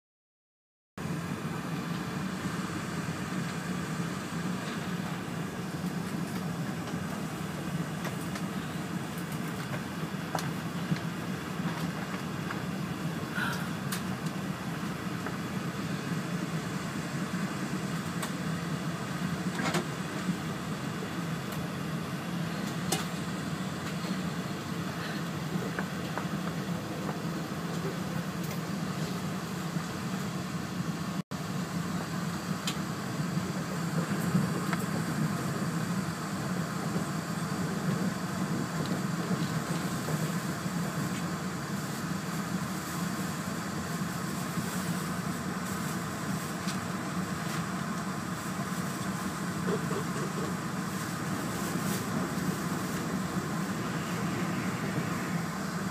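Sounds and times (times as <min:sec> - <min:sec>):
train cabin running noise: 0:01.0 - 0:55.9.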